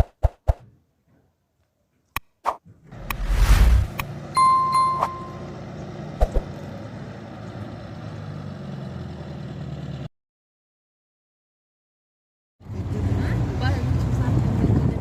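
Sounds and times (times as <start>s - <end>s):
electronic beep: 4.4s - 5.5s.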